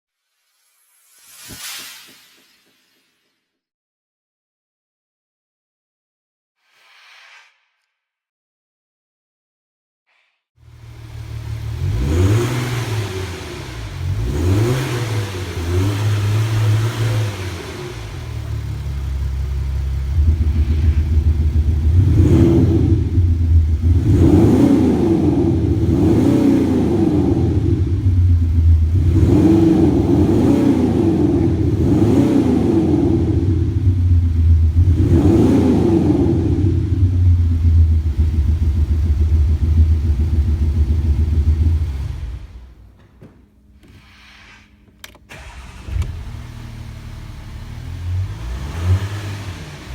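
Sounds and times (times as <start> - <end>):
car engine revving: 10.7 - 42.8, 45.3 - 49.9.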